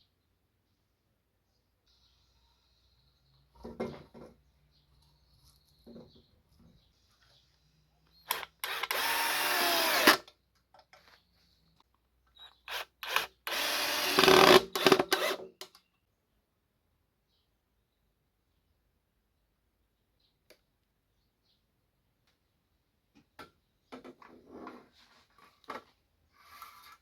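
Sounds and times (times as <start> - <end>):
power tool motor running: 8.3 - 10.2, 12.7 - 15.4.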